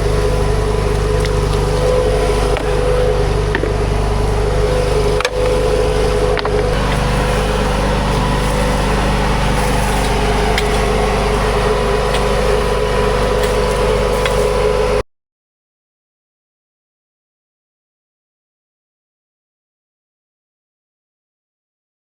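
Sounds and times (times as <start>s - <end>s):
skid steer engine running: 0.0s - 15.0s.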